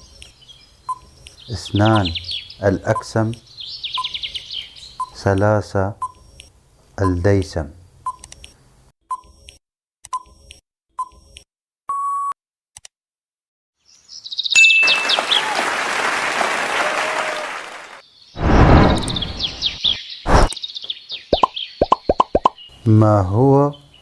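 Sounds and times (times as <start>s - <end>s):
chirpy jingle: 14.4s - 15.4s
loud burst: 18.4s - 19.6s, 20.3s - 20.5s.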